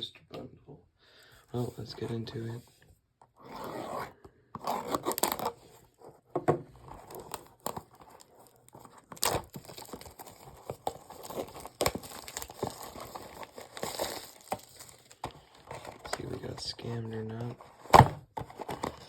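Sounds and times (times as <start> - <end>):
plastic wrap tearing and crinkling: 4.7 - 5.7, 7.0 - 16.3.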